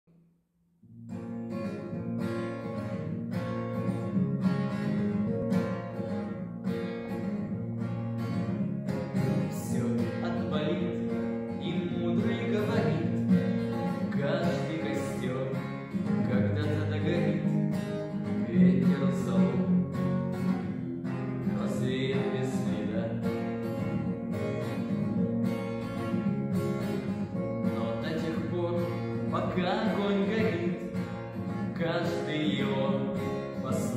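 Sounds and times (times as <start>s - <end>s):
strummed acoustic guitar: 0.8s - 33.9s.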